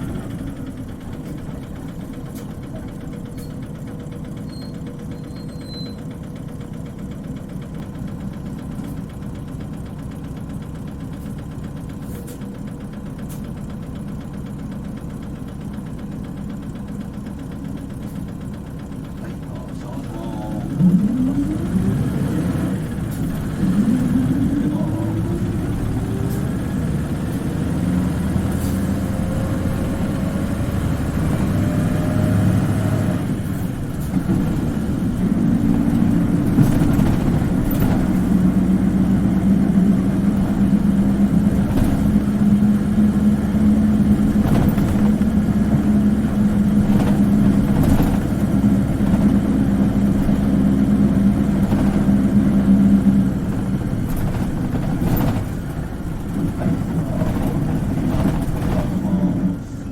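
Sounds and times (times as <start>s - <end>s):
bus diesel engine whining: 0.0s - 59.9s
knocks from bus body: 41.4s - 42.4s, 44.1s - 45.8s.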